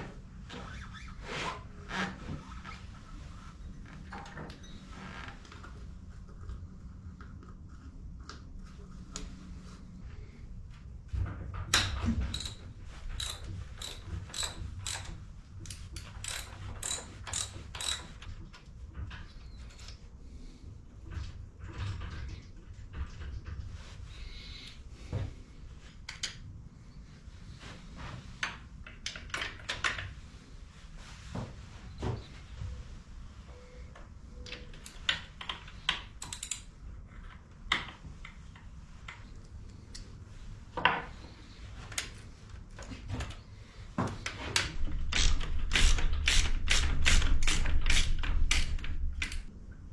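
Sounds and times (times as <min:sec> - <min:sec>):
ratchet wrench clicking: 0:12.3 - 0:12.6, 0:13.2 - 0:18.2, 0:36.2 - 0:36.6.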